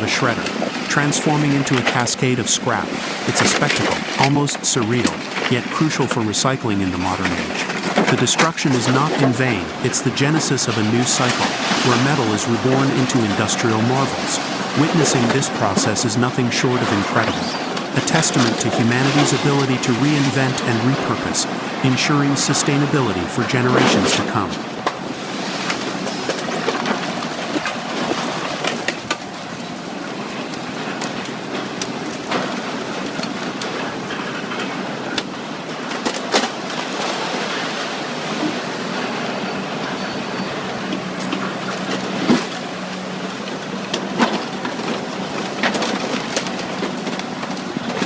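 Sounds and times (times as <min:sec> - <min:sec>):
machinery engine hum: 0:00.0 - 0:25.1.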